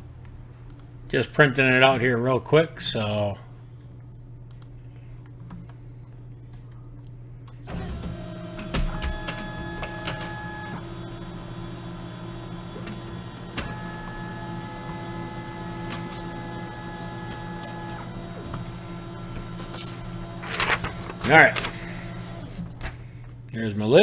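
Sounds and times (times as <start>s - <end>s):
printer clicks: 7.7s - 23.4s
printer printing: 7.7s - 23.5s.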